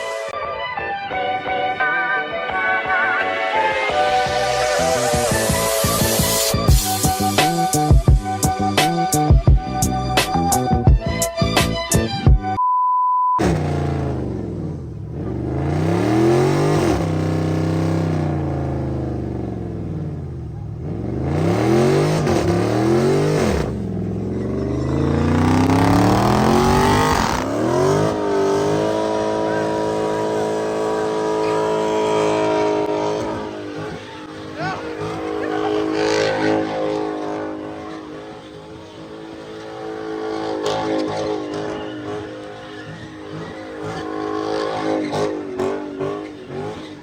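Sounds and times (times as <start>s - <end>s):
car engine revving: 3.5s - 12.2s, 13.4s - 47.0s
short steady beep: 12.6s - 13.4s.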